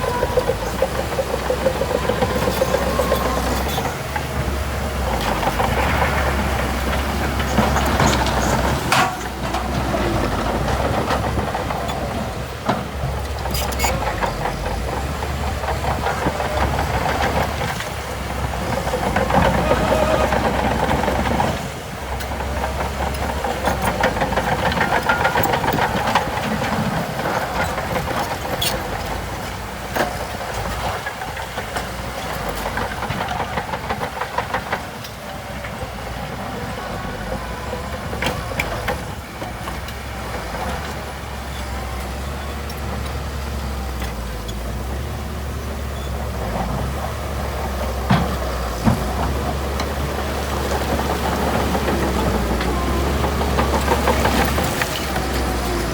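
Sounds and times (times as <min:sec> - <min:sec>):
heavy machinery diesel engine: 0:00.0 - 0:55.9.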